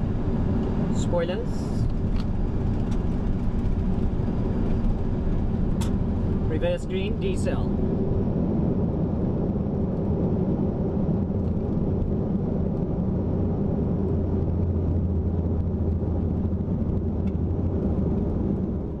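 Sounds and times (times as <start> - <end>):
aircraft engines and wheels rumbling: 0.0 - 19.0.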